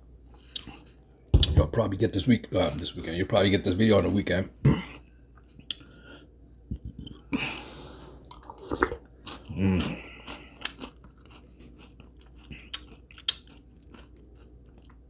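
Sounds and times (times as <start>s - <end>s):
person chewing: 6.8s - 15.0s.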